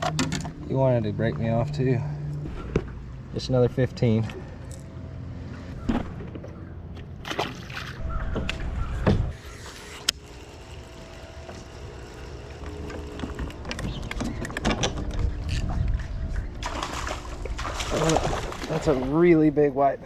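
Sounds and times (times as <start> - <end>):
sharp clicks and knocks: 12.4 - 16.0
wind buffeting microphone: 13.5 - 19.7.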